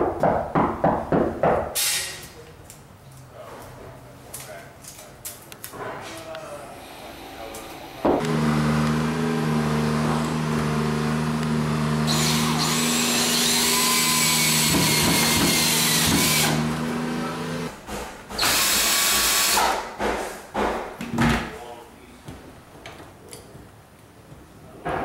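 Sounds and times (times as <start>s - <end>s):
power drill running: 8.2s - 17.6s, 18.4s - 19.6s.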